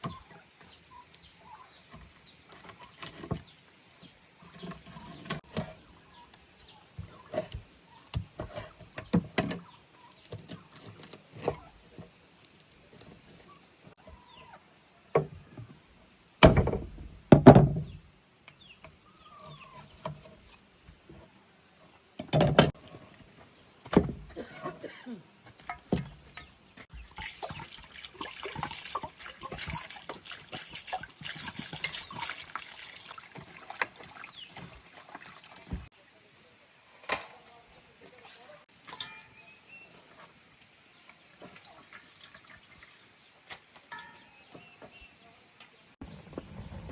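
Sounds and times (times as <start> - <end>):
knocks and thuds of handling: 16.4 - 18.0, 22.2 - 22.8, 23.8 - 24.6, 25.5 - 27.0
water splashing and trickling: 25.6 - 37.0, 38.0 - 46.0.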